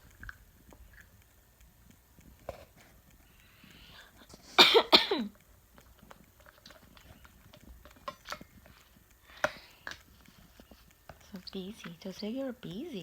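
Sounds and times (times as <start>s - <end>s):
faint clicks and ticks: 0.0s - 13.0s
person coughing: 4.5s - 5.3s.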